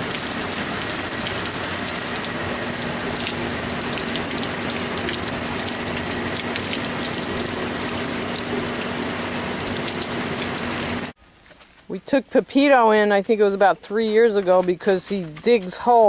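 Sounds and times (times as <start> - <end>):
steady rain falling: 0.0 - 11.6.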